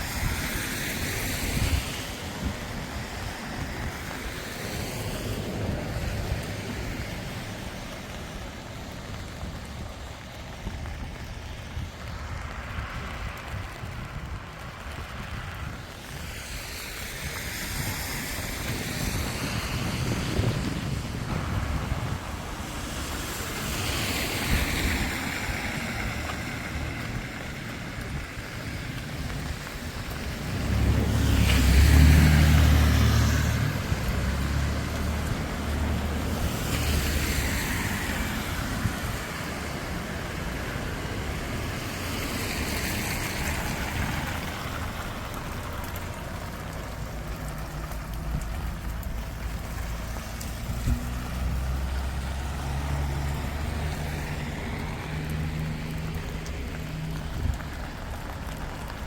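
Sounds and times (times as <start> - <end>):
wind on microphone: 0.0 - 8.2, 8.8 - 47.5
cars passing on wet road: 0.0 - 59.0
engine rumble: 0.0 - 59.0.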